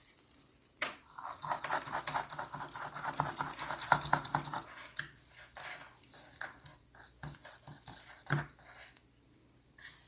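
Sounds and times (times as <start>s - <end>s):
scratching on a hard surface: 1.1s - 9.0s.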